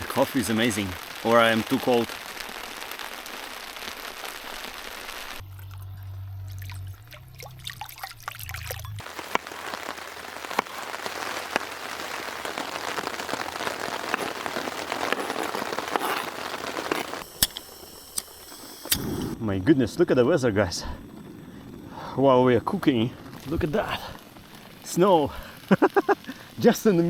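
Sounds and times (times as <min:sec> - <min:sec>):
rain pattering on hard surface: 0:00.0 - 0:17.2, 0:19.6 - 0:27.0
low steady hum: 0:05.4 - 0:09.0.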